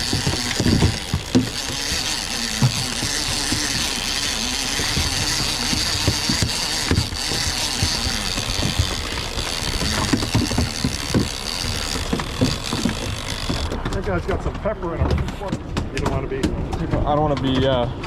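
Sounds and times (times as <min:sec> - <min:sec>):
rushing water noise: 0:00.0 - 0:13.8
low thumps: 0:00.0 - 0:17.5
boat engine running: 0:00.0 - 0:18.0.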